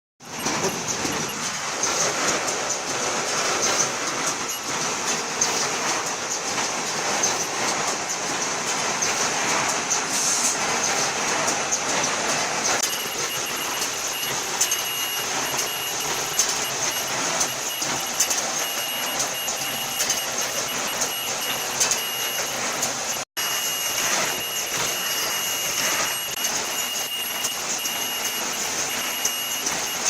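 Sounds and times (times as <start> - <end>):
cutting and sewing machine running: 0.2 - 30.0
high machine whine: 0.2 - 30.0
rapid irregular clicks: 10.7 - 23.3.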